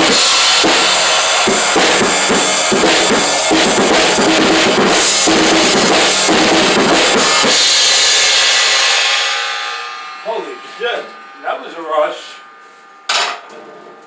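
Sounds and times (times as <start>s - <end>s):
drum kit played hard: 0.0s - 10.8s
cymbals ringing: 0.0s - 13.4s.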